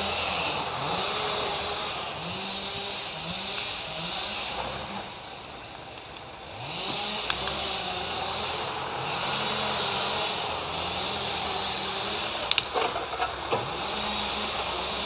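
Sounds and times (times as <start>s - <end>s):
tractor diesel engine revving: 0.0s - 15.0s.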